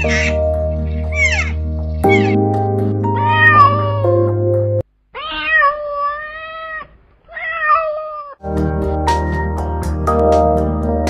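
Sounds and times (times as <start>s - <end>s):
cat meowing: 0.0s - 2.4s, 3.0s - 4.3s, 5.1s - 8.4s
background music: 0.0s - 4.8s, 8.4s - 11.0s.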